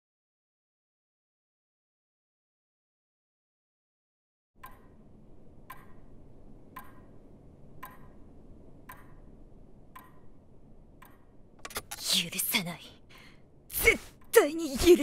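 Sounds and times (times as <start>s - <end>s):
clock ticking: 4.6s - 11.8s
low room hum: 4.6s - 15.0s.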